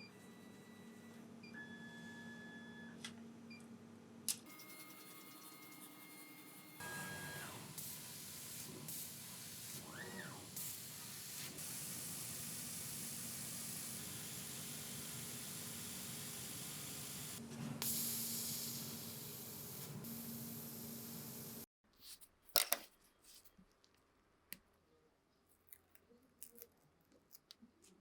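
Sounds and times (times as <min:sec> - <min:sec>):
spray hiss: 0:10.5 - 0:21.7.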